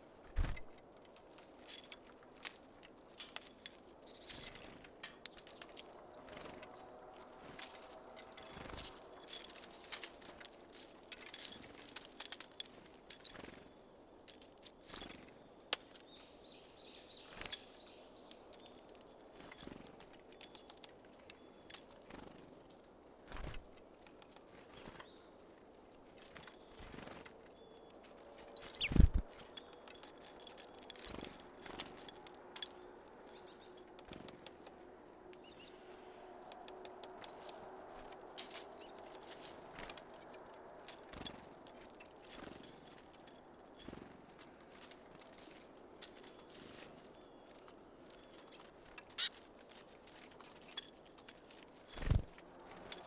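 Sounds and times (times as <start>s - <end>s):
birds pecking and landing: 0.1s - 53.0s
high bird chirps: 28.4s - 29.8s.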